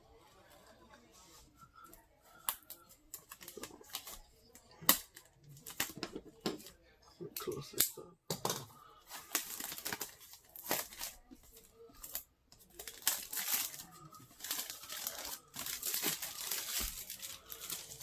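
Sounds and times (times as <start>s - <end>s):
cardboard tearing and rustling: 9.2s - 11.2s, 12.1s - 18.0s.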